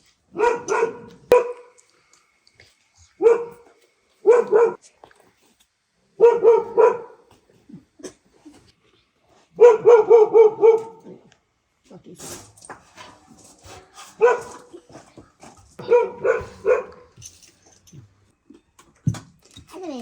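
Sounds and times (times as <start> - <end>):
dog barking: 0.3 - 1.8, 3.2 - 4.8, 6.2 - 7.3, 9.6 - 11.3, 14.1 - 14.8, 15.8 - 17.2.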